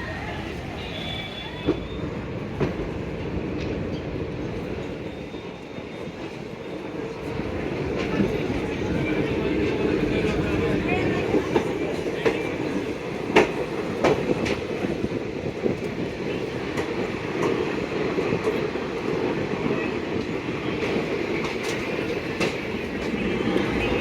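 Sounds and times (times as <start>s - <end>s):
rumble of train wheels on rails: 0.0s - 24.0s
wheels clacking over rail joints: 7.2s - 24.0s.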